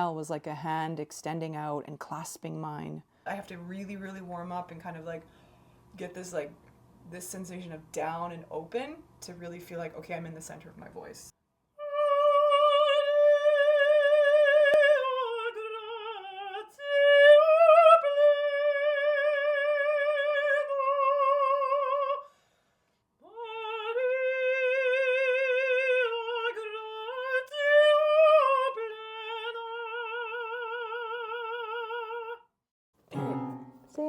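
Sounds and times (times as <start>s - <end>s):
operatic soprano singing: 11.8s - 22.2s, 23.2s - 32.4s.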